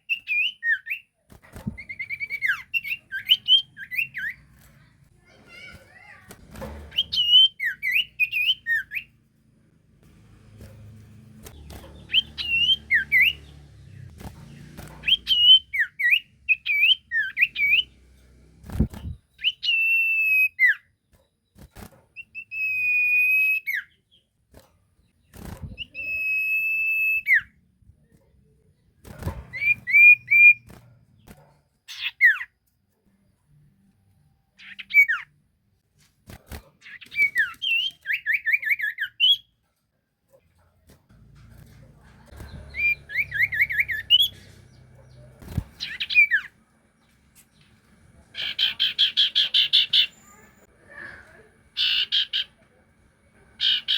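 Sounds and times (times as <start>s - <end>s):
songbird whistling: 6.9s - 9.1s, 15.0s - 17.9s, 19.4s - 20.8s.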